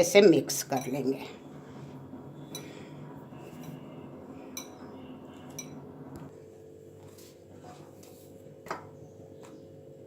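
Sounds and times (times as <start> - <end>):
spoon clinking against bowl: 4.6 - 4.8, 5.5 - 5.8.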